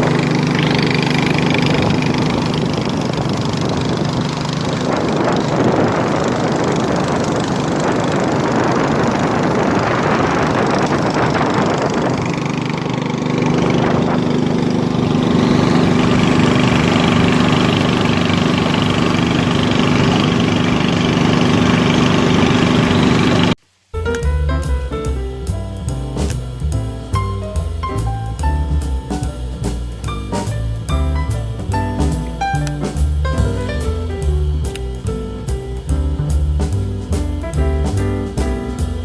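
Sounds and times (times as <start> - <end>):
small engine running: 0.0 - 23.6
music with drum beat: 24.0 - 39.0.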